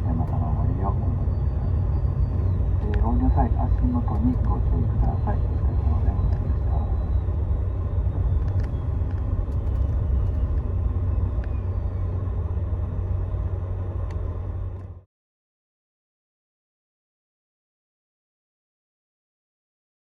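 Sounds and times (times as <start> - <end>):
coach engine low rumble: 0.0 - 15.1.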